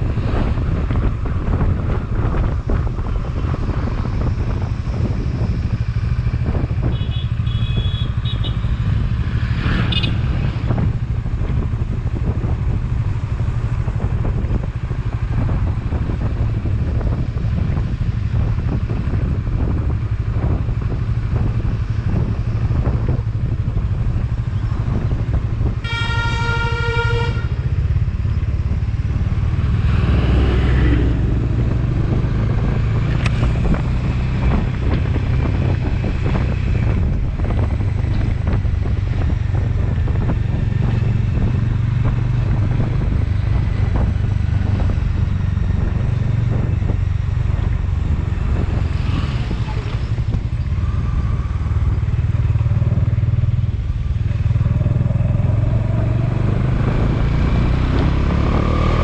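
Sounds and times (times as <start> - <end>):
motorcycle engine running: 0.0 - 59.0
wind on microphone: 0.0 - 59.0
vehicle horn: 6.9 - 8.8, 9.9 - 10.2, 25.8 - 27.7.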